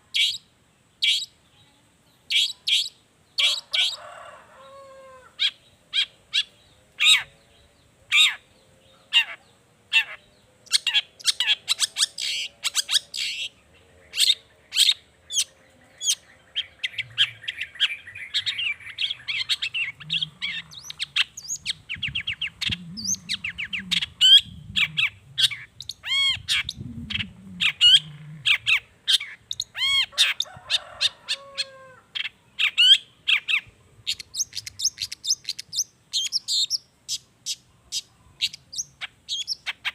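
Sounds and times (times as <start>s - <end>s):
shrike singing: 10.0s - 31.8s.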